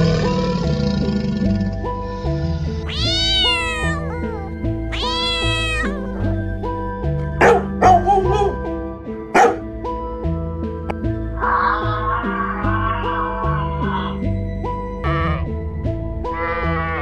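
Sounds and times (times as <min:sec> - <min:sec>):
cat meowing: 0:02.8 - 0:06.3, 0:11.4 - 0:14.2
background music with steady beat: 0:03.0 - 0:11.4, 0:14.2 - 0:17.0
small dog barking: 0:07.4 - 0:08.6, 0:09.4 - 0:09.6.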